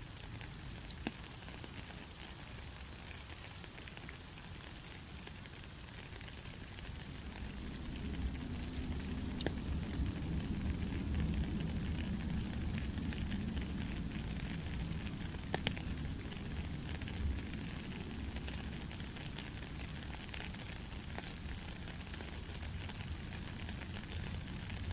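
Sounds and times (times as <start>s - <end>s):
faint crackles: 0.0s - 24.9s
white noise hiss: 0.0s - 24.9s
low rumble: 7.1s - 15.3s.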